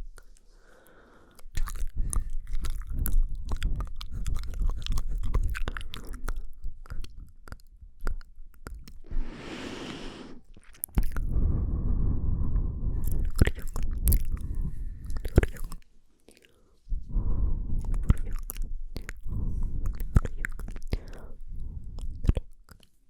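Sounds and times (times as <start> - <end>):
wet tongue and lip clicks: 0.0 - 9.2, 10.4 - 11.4, 12.9 - 23.0
breathy hiss: 9.1 - 10.5.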